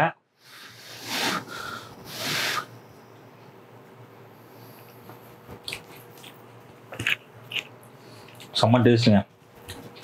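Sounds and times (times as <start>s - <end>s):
man chewing wetly: 5.5s - 8.6s.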